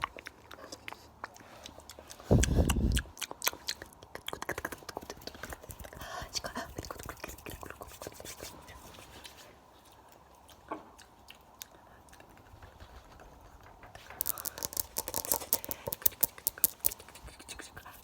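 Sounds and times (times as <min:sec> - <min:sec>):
sharp crisp clicks: 0:14.1 - 0:17.5.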